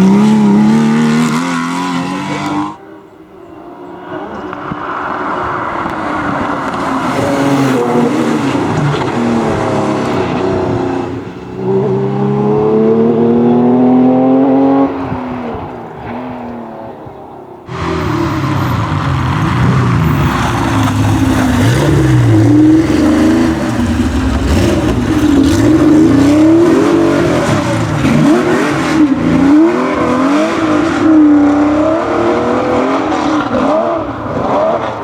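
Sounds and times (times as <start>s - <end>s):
racing car engine revving: 17.7s - 35.0s.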